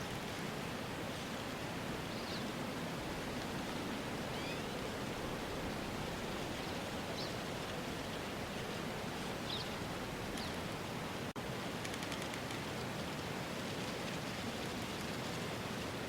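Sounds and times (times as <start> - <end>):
outdoor ambience hiss: 0.0 - 16.0.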